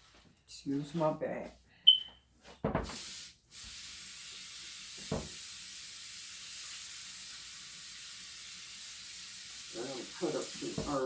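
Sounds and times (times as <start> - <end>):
steady hiss: 2.8 - 11.0.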